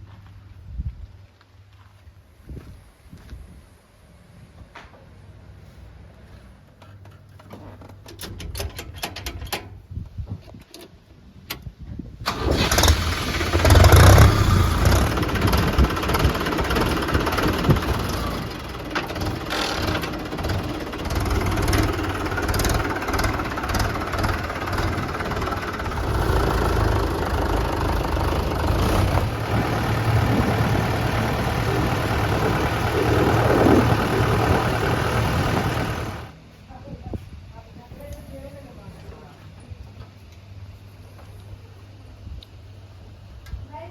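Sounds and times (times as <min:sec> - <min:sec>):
diesel engine starting and running: 0:12.2 - 0:36.4.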